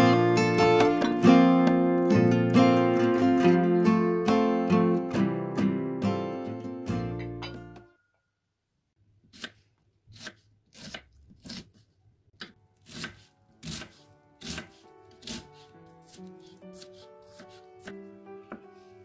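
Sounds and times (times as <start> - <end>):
knife chopping on cutting board: 9.3 - 11.8, 12.4 - 18.0
soft background music: 12.6 - 19.0.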